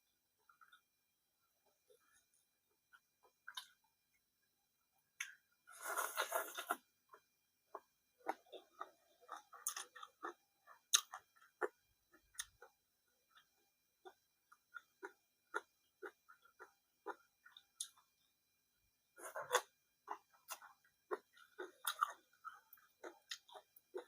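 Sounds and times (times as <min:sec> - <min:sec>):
person chewing with wet smacks: 0:05.2 - 0:18.2, 0:19.2 - 0:24.0.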